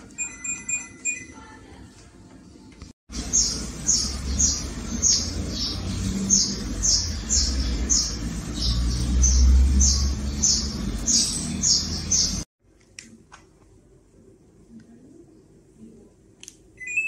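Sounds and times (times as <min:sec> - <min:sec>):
small birds chirping: 0:03.2 - 0:12.5.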